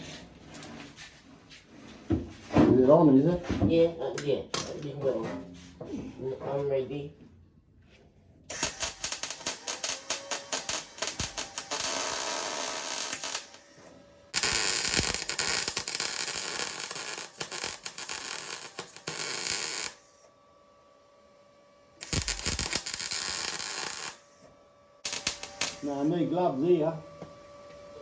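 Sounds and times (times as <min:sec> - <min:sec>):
crackling welding arc: 0:08.5 - 0:13.7, 0:14.4 - 0:20.0, 0:22.0 - 0:24.4, 0:25.0 - 0:26.3.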